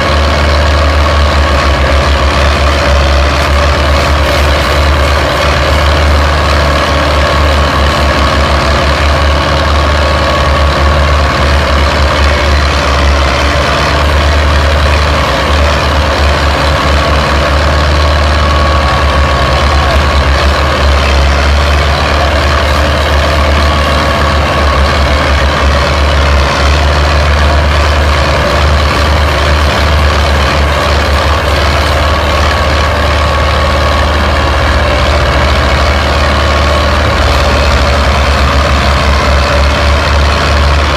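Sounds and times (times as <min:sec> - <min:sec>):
tractor engines droning: 0:00.0 - 0:40.9.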